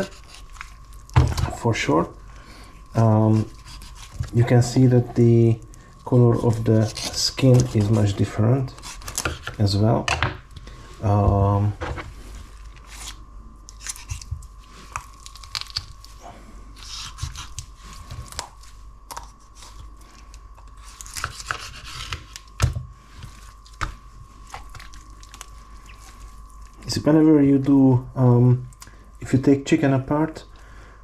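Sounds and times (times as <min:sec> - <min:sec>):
raw chicken tearing and squelching: 0:00.0 - 0:09.7, 0:12.5 - 0:22.6, 0:23.2 - 0:26.9.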